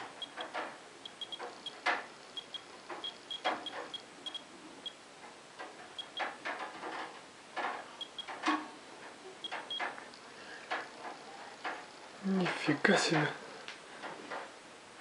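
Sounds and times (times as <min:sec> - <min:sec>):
dosimeter high beeps: 0:00.0 - 0:05.0, 0:06.0 - 0:06.3, 0:08.0 - 0:08.3.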